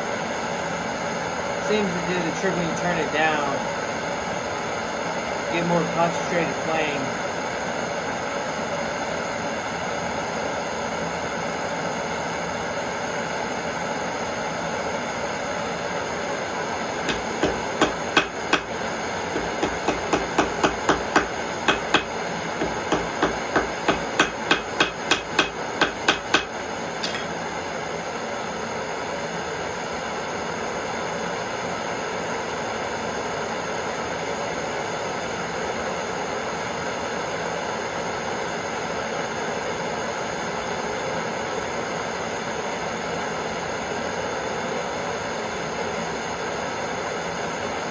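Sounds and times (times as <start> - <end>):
gas torch hissing: 17.0 - 27.3
hammer blows on anvil: 17.1 - 18.8, 19.4 - 27.4.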